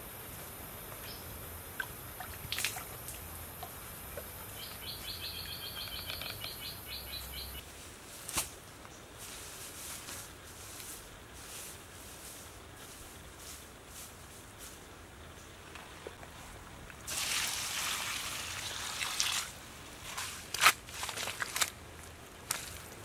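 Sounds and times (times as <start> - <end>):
insect hiss: 0.0 - 20.4
bird chirping rapidly: 4.6 - 7.6
rustling of dry straw: 7.6 - 15.0, 15.8 - 23.0.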